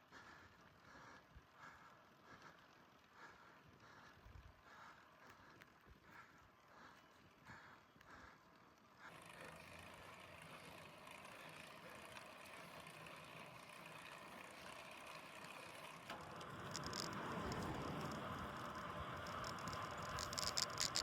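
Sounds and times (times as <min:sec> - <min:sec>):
wind and bicycle tyre noise: 0:00.1 - 0:21.0.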